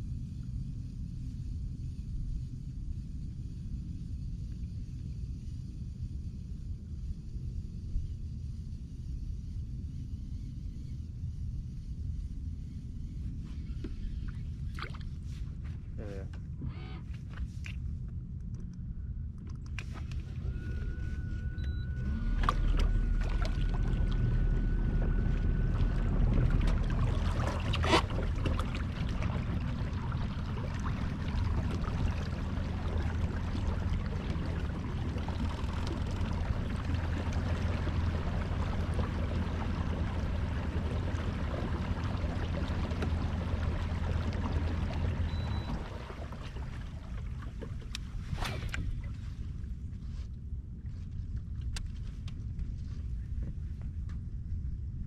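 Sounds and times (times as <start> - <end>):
low hum: 0.0 - 55.0
low rumble of kayak on water: 0.0 - 55.0
thin steady whine: 0.0 - 55.0
small water splashes: 14.3 - 15.3, 22.1 - 49.6.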